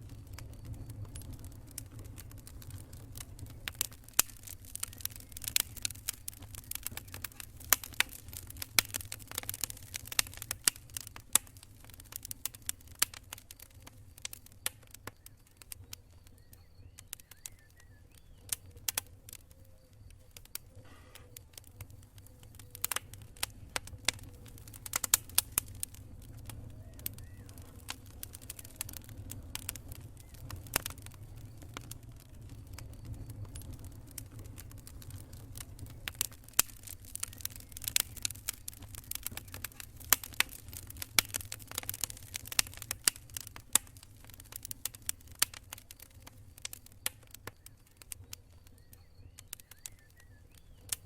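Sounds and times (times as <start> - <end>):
low steady rumble: 0.0 - 12.5, 20.9 - 41.2
campfire crackling and popping: 0.0 - 51.0.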